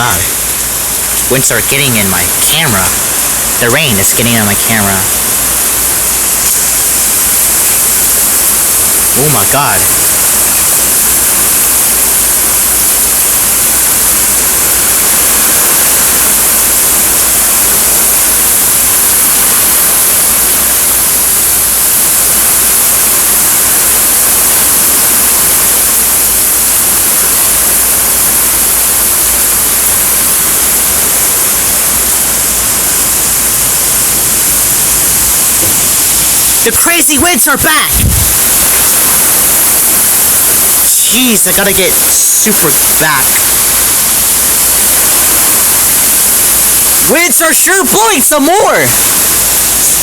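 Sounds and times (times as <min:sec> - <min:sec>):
heavy pouring rain: 0:00.0 - 0:50.0
wind rumbling on microphone: 0:37.9 - 0:40.9.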